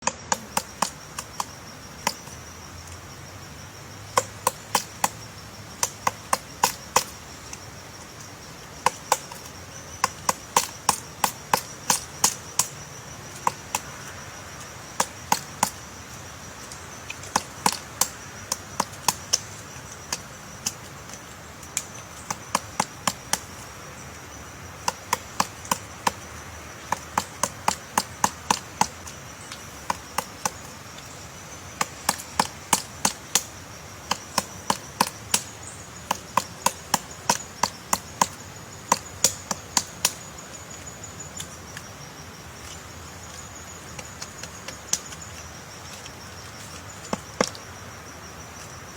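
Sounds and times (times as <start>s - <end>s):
woodpecker pecking wood: 0.0s - 3.1s, 4.0s - 23.8s, 24.7s - 40.6s.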